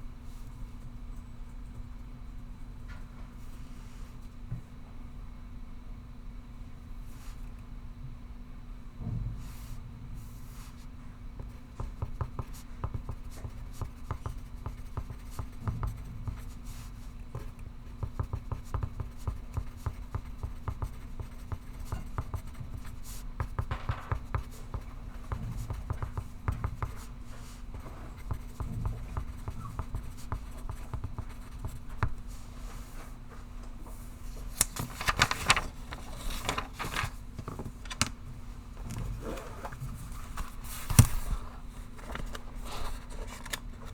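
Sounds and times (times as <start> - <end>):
low room hum: 0.0 - 43.9
paper rustling: 34.1 - 43.9.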